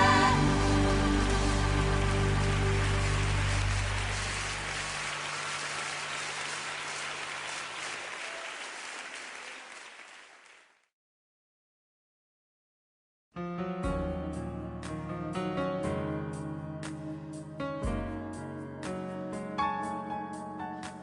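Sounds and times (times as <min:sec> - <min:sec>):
music final chord: 0:00.0 - 0:04.8
congregation applauding: 0:00.0 - 0:10.9.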